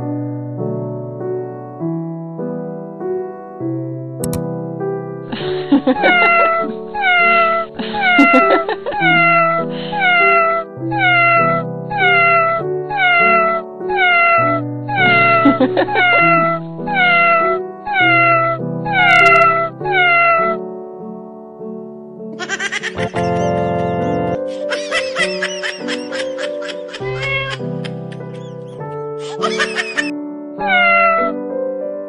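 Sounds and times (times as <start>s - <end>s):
keyboard chords: 0.0s - 32.0s
cat meows falling in pitch: 7.0s - 8.3s, 9.1s - 15.4s, 16.0s - 20.6s, 27.1s - 27.6s, 30.6s - 31.4s.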